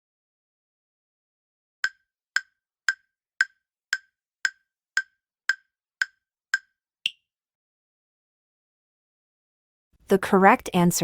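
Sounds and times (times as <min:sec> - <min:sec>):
countdown timer ticks: 0:01.8 - 0:07.2.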